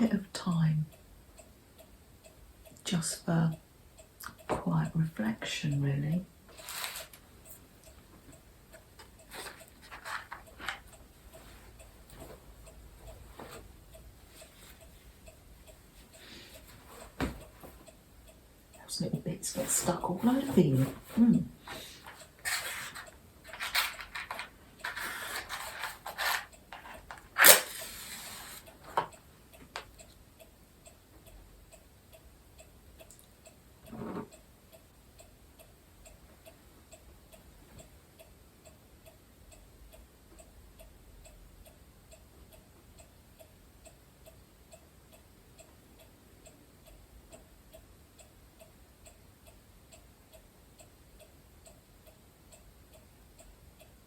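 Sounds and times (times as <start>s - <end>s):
clock ticking: 0.0s - 54.0s
rustling handling sounds: 6.5s - 7.2s, 9.0s - 15.2s, 19.6s - 29.2s
sharp click: 22.5s - 29.1s.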